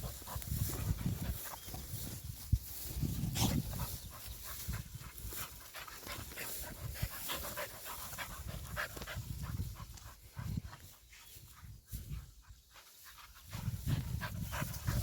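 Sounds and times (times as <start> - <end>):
dog panting: 0.0 - 1.7, 3.4 - 15.0.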